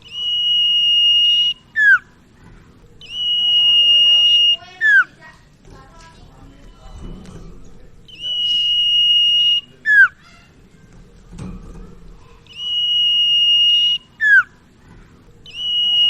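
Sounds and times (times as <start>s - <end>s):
bird singing high whistle: 0.0s - 2.2s, 3.0s - 5.2s, 8.1s - 10.2s, 12.5s - 14.6s, 15.4s - 16.0s.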